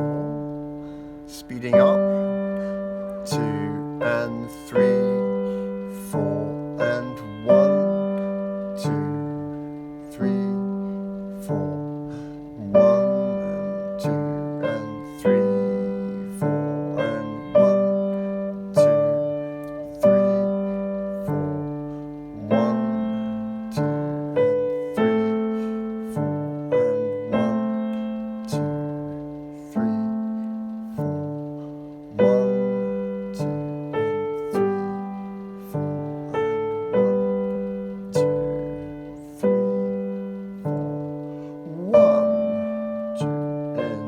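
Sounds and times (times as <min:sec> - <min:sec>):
piano chords: 0:00.0 - 0:44.0.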